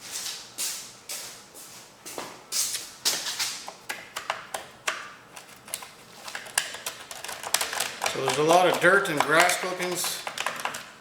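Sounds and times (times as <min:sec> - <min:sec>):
clicks and taps of parts: 0:03.1 - 0:11.0.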